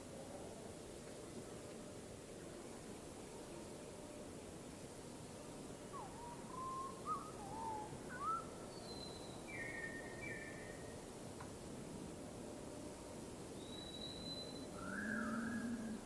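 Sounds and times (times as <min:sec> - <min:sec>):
steady background hiss: 0:00.0 - 0:16.0
bird singing whistled notes: 0:05.9 - 0:11.0, 0:13.6 - 0:16.0.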